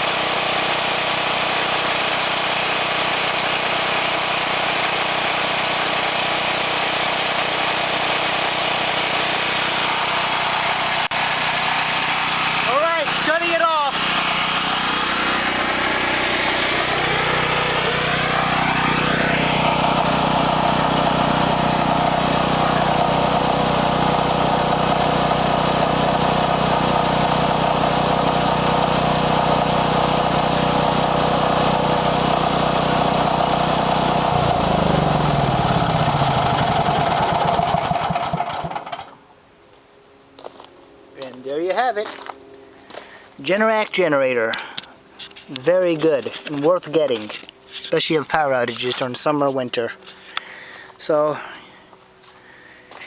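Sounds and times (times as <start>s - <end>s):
generator engine running: 0.0s - 39.2s.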